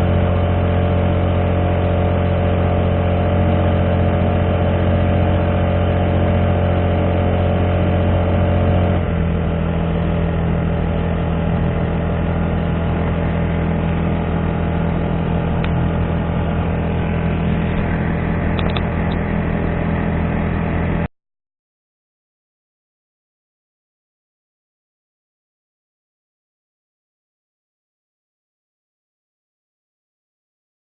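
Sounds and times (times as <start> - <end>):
small four-stroke engine running: 0.0 - 21.1.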